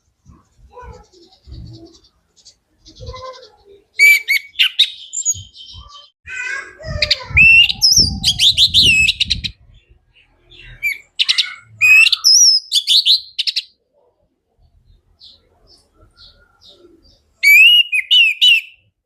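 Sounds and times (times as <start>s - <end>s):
thrush singing whistled notes: 10.6s - 13.7s, 17.4s - 18.8s.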